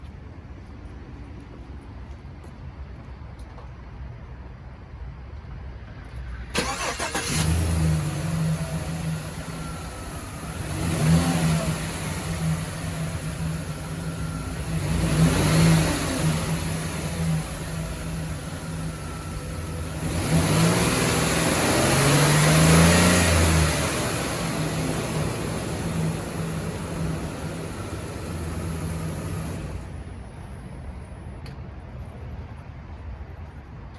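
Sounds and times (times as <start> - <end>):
van engine starting: 6.4 - 31.0
engine idling: 6.4 - 32.2
engine revving: 6.6 - 30.0.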